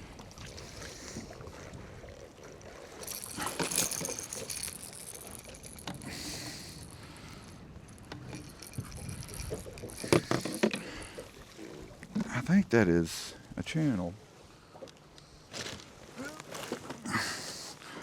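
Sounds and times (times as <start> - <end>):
fishing tackle rattling and clinking: 2.1 - 11.5.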